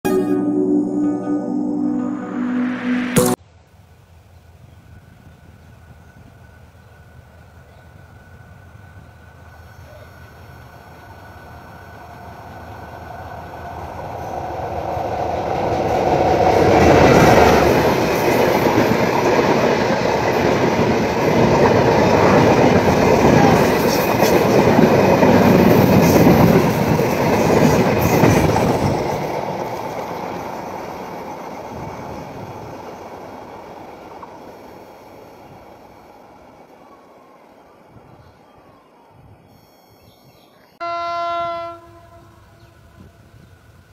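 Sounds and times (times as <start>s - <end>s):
diesel train passing: 0.1s - 3.4s, 5.2s - 39.2s
train coaches rattling: 13.6s - 34.7s.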